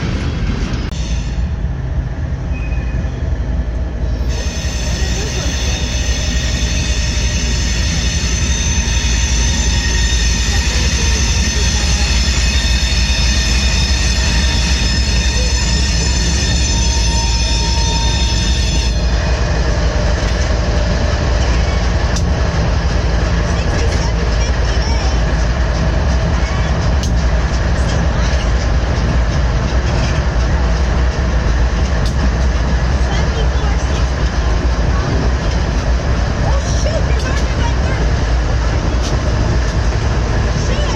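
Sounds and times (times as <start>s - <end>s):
train rumbling past: 0.0s - 40.9s
wheels clicking on rails: 18.4s - 40.9s.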